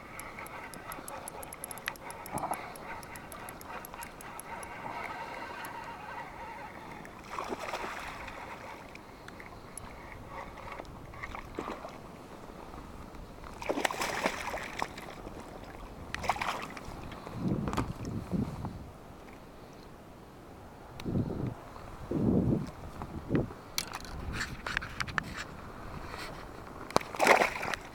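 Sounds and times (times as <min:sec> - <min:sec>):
water sloshing around boat: 0:00.0 - 0:18.1, 0:26.1 - 0:27.9.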